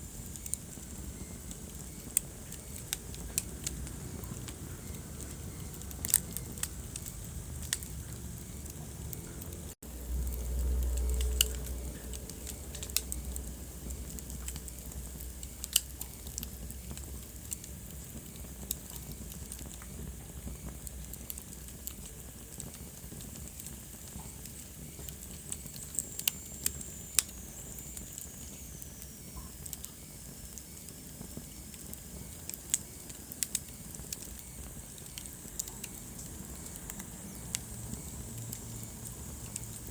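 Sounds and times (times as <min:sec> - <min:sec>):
steady fire hiss: 0:00.0 - 0:39.9
wood fire crackling and popping: 0:00.0 - 0:39.9
low rumble: 0:03.1 - 0:15.4.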